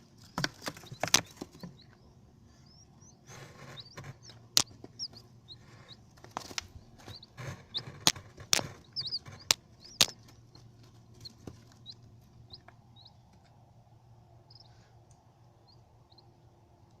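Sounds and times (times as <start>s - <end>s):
small bird chirping: 0.1s - 13.4s, 14.3s - 17.0s
sharp clicks or knocks: 6.3s - 10.3s.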